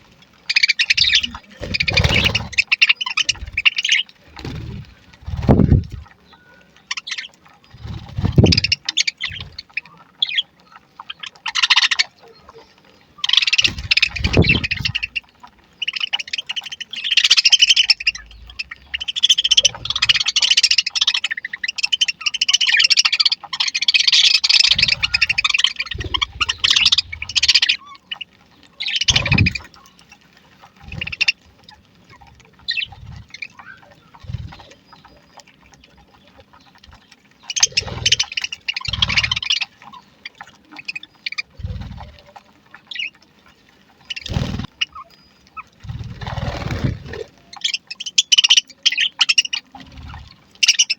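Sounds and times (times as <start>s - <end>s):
budgerigars chattering and chirping: 0.0s - 50.9s.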